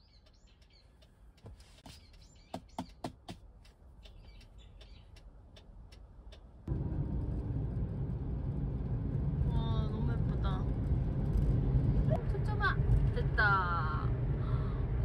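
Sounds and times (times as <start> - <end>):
car driving on road: 2.9 - 15.0
faint bird chirps: 4.0 - 5.2.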